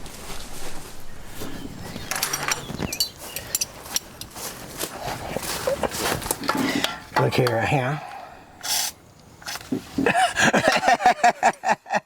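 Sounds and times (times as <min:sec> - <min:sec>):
metal hand tools clinking: 0:02.1 - 0:04.3.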